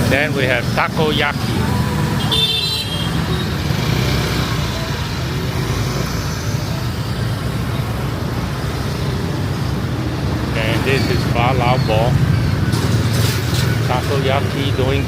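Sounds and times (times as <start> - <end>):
passing traffic rumble: 0.0 - 15.0.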